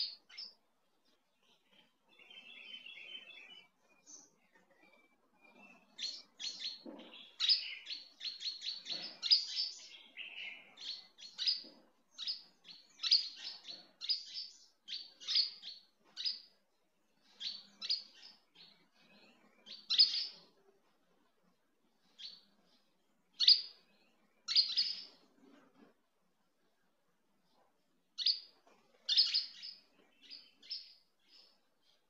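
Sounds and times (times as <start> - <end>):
small bird chirping: 0.0 - 20.8, 21.8 - 26.0, 27.4 - 32.0.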